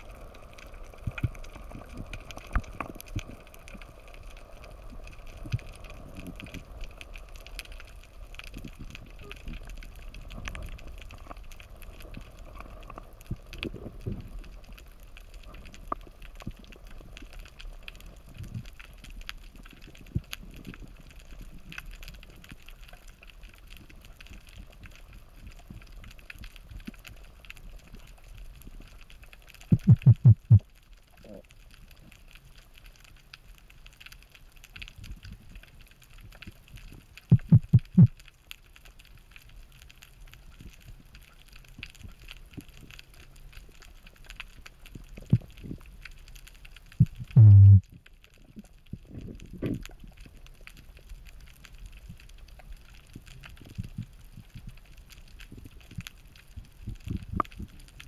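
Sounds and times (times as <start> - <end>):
faint underwater crackle: 0.0 - 58.0
low thumps: 29.7 - 30.6, 37.3 - 38.1, 47.3 - 47.8.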